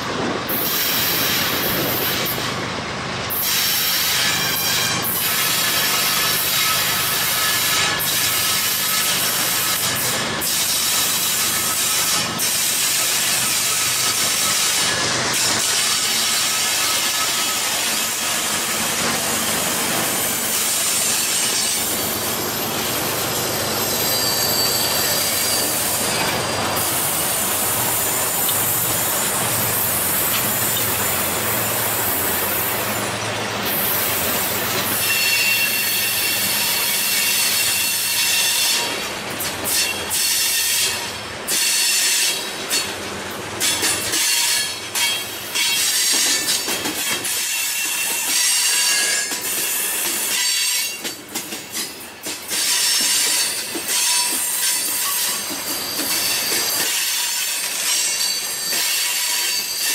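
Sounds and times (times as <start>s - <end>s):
freight train passing: 0.0s - 59.9s
steel wheels clattering on rail: 0.0s - 59.9s
high wheel squeals: 20.1s - 42.9s, 43.6s - 51.1s, 51.9s - 59.9s.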